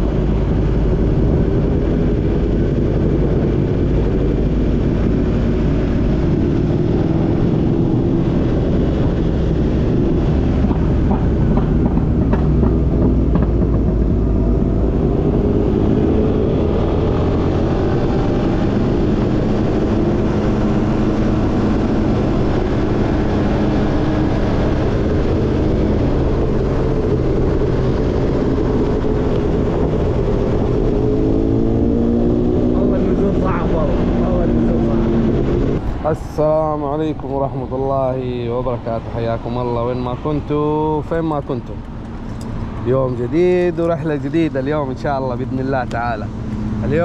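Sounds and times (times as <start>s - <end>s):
car engine: 0.0s - 47.0s
road noise: 0.0s - 47.0s.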